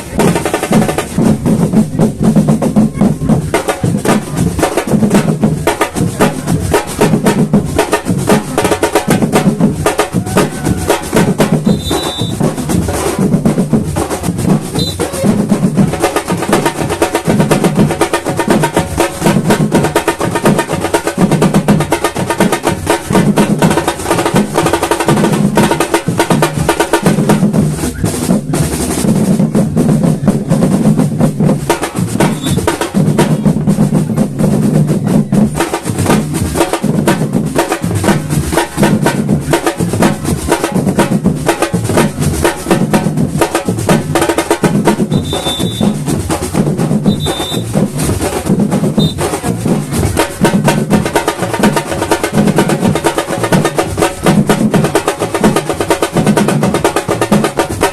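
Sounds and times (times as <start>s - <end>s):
deep bass drums: 0.0s - 57.9s
samba drum ensemble: 0.0s - 57.9s
snare drum rolls: 0.0s - 57.9s
short high-pitched tones: 11.6s - 12.4s, 45.1s - 46.0s, 47.1s - 47.7s.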